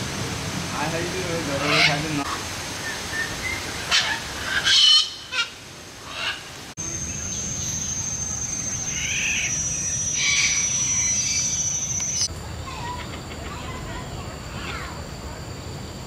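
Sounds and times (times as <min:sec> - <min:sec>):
birds calling: 0:01.5 - 0:13.8
steady high-pitched tone: 0:06.8 - 0:16.0.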